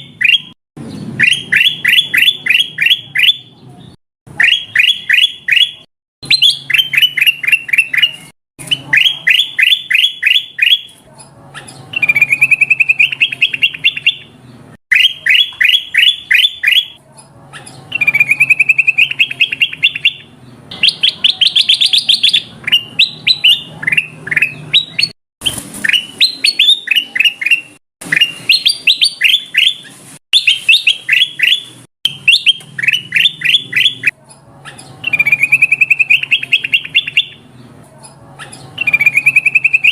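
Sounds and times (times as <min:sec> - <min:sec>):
bird whistling falling notes: 0:20.8 - 0:34.1.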